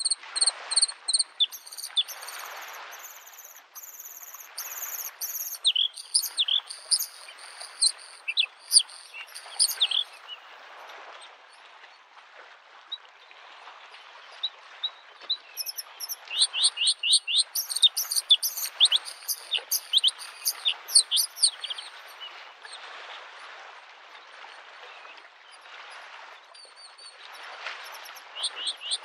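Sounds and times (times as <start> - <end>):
bird singing rapid varied notes: 0.0 - 10.4, 15.6 - 22.2, 27.9 - 29.0
small waves lapping shore: 0.0 - 29.0.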